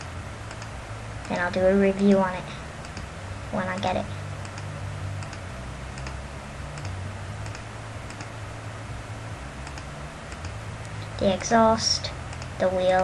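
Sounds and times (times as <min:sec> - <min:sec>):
low steady hum: 0:00.0 - 0:13.0
computer mouse clicks: 0:00.5 - 0:01.4, 0:02.8 - 0:03.1, 0:03.8 - 0:08.3, 0:09.6 - 0:11.0, 0:12.3 - 0:12.6.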